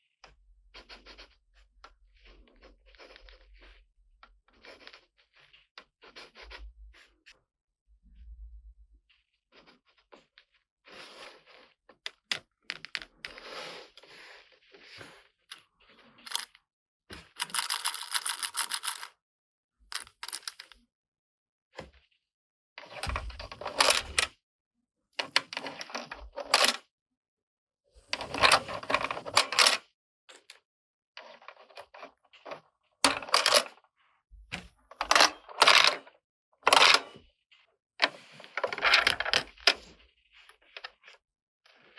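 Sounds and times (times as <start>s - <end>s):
plastic toy pieces rattling: 16.3s - 16.5s, 17.3s - 19.1s.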